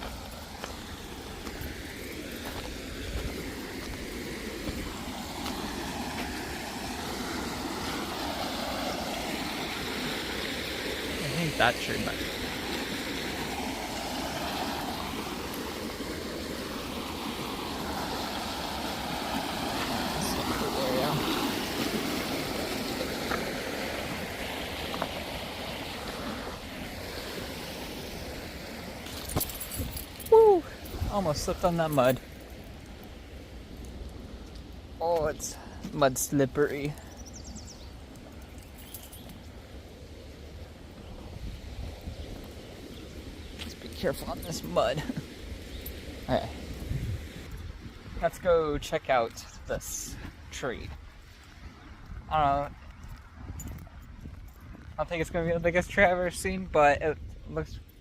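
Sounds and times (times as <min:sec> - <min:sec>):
river water rushing: 0:00.0 - 0:37.2.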